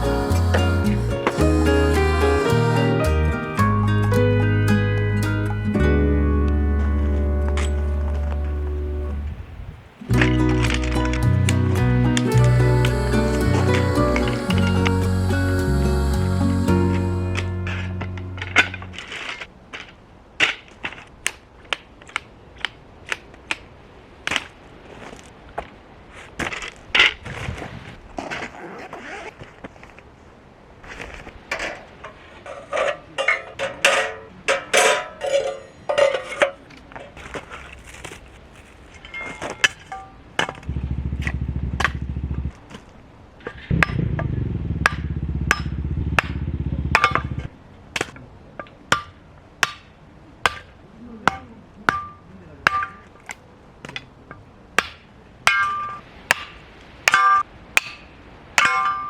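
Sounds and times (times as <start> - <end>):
low rumble: 0.0 - 19.1, 40.6 - 42.7, 43.7 - 47.7
clatter: 40.4 - 42.6, 43.5 - 47.5.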